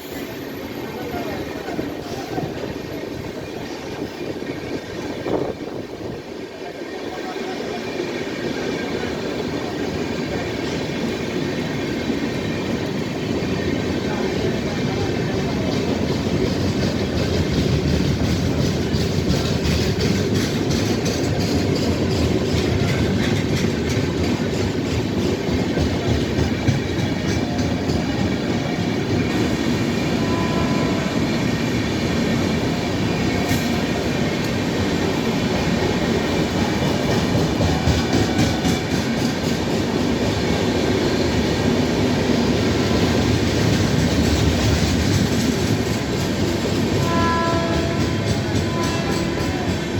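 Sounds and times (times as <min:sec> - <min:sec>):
train rumbling: 0:00.0 - 0:49.9
wheels clacking over rail joints: 0:15.6 - 0:31.5, 0:32.1 - 0:49.9.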